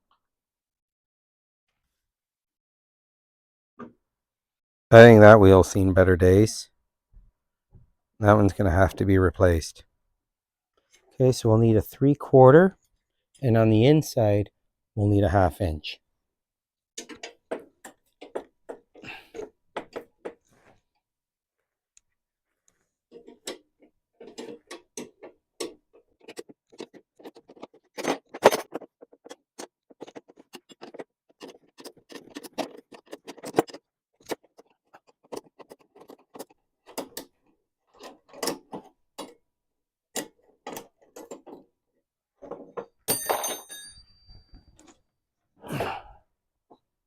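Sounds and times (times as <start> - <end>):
metal rattle: 23.1 - 39.4
metal tools clinking: 42.6 - 45.0.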